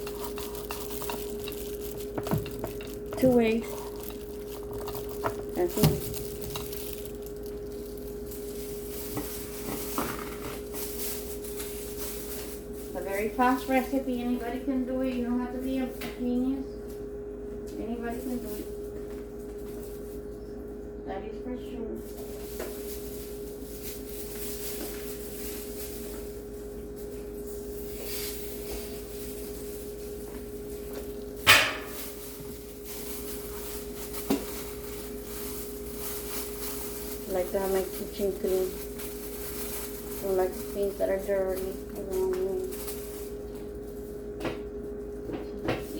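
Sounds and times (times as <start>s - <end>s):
utensil clinking against pot: 0.0s - 6.8s
kitchen handling noises: 0.0s - 12.6s, 28.0s - 43.7s
electrical hum: 0.0s - 45.9s.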